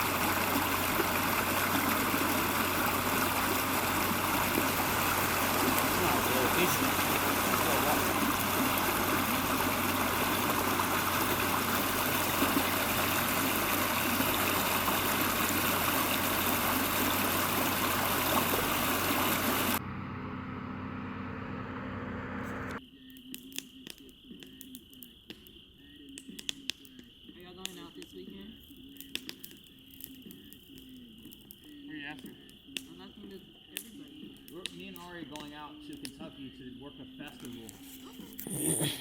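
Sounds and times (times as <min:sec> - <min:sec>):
rushing water: 0:00.0 - 0:19.8.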